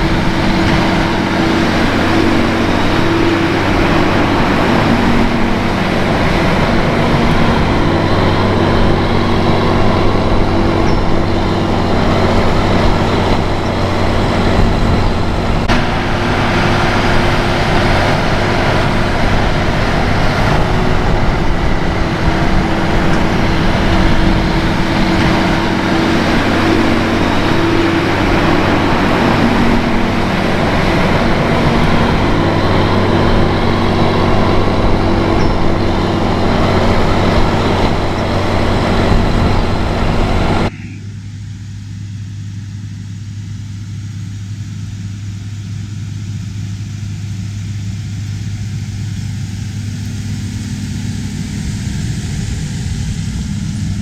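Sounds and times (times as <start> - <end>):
diesel machinery running: 0.0 - 54.0.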